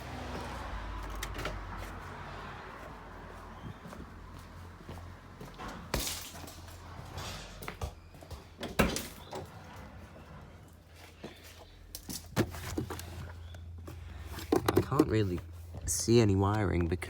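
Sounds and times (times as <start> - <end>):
hands rummaging under car seat: 11.1 - 15.8.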